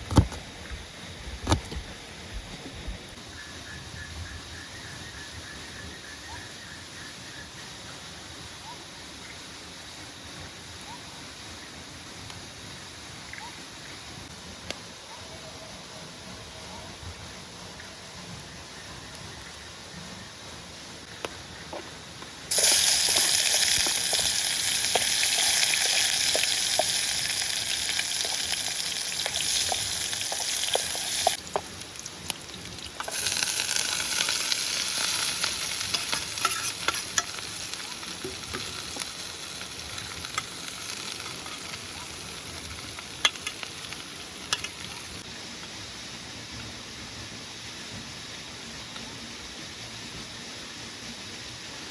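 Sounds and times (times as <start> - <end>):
oil popping and crackling: 22.5 - 45.2
food sizzling in hot oil: 22.5 - 45.3.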